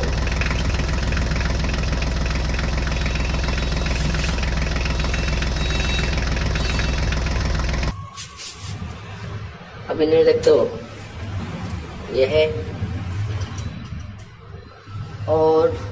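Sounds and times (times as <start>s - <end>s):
toy tractor engine drone: 0.0s - 7.9s.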